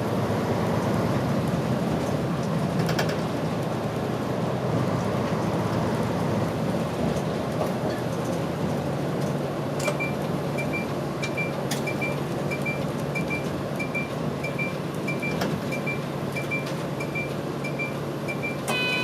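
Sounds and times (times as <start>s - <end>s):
bus running noise: 0.0s - 19.0s
short high beeps: 11.4s - 19.0s.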